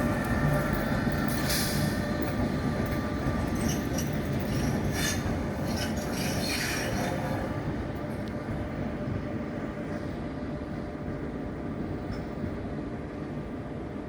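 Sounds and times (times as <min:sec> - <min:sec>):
wheel squealing on rail: 0:00.0 - 0:07.6
train wheels rumbling on rails: 0:00.0 - 0:14.0.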